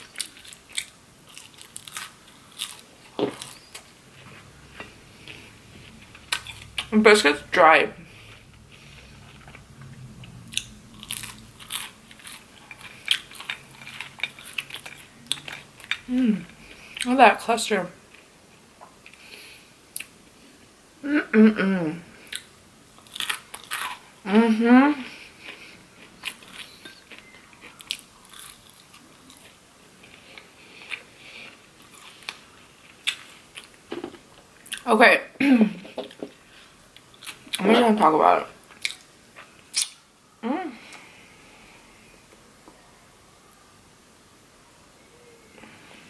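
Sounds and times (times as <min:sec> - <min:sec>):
person chewing crunchy food: 0:00.0 - 0:07.0, 0:10.5 - 0:17.1, 0:22.2 - 0:24.2, 0:25.2 - 0:34.8, 0:36.0 - 0:37.6.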